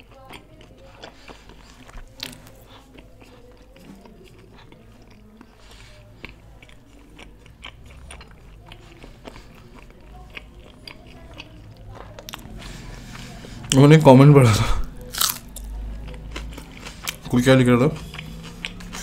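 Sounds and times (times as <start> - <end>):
chewing food: 0.0 - 14.0, 14.9 - 19.0.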